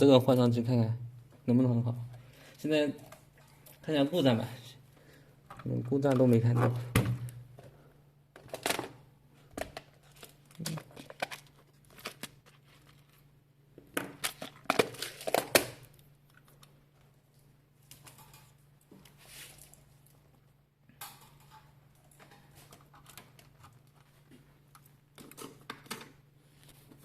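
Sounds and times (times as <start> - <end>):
crinkling rustles: 8.4 - 13.4.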